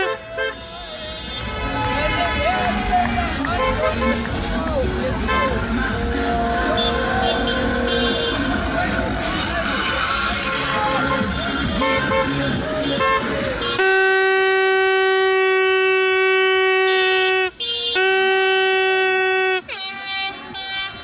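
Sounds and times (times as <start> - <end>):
car horn blast: 0.0 - 4.4, 6.6 - 21.0
street noise: 0.0 - 21.0
music: 1.2 - 15.9.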